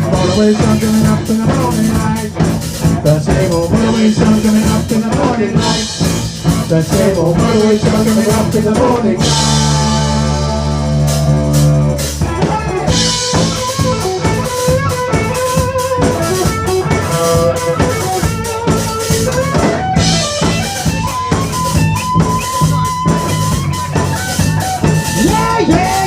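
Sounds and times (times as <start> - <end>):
lead guitar line: 0.0 - 26.0
rock band playing: 0.0 - 26.0.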